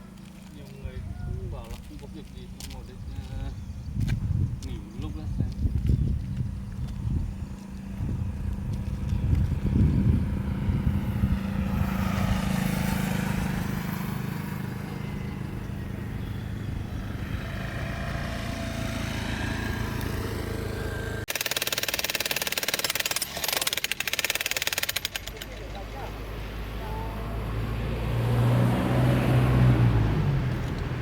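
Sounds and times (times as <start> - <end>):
small engine running: 6.4 - 29.6.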